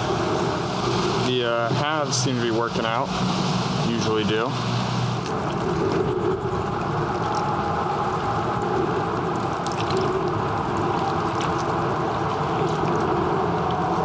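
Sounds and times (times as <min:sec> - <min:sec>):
water lapping and gurgling: 0:00.0 - 0:14.0
faint ticks and drips: 0:05.2 - 0:14.0.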